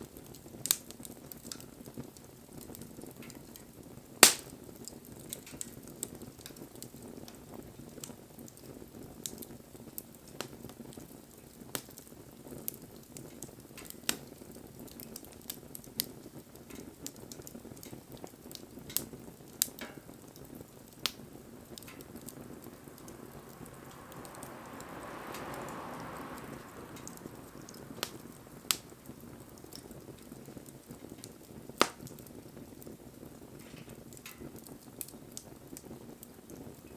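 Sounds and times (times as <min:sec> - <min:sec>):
fire crackles and pops: 0:00.0 - 0:36.9
wood fire flames rushing: 0:00.0 - 0:36.9
hiss: 0:22.2 - 0:29.5.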